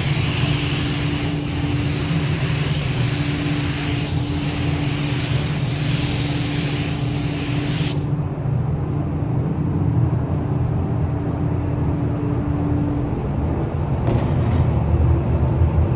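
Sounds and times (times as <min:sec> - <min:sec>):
paint spray gun hissing: 0:00.0 - 0:08.1
low machinery hum: 0:00.0 - 0:15.9.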